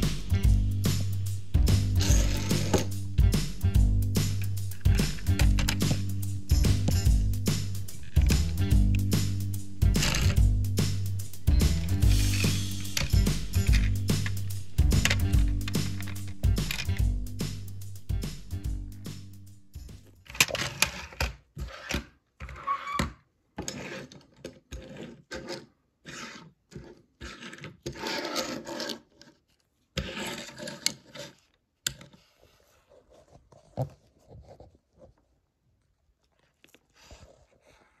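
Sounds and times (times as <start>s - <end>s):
toy car being handled: 4.4s - 6.0s, 10.0s - 10.4s, 12.2s - 17.0s, 20.1s - 22.7s, 23.6s - 32.2s.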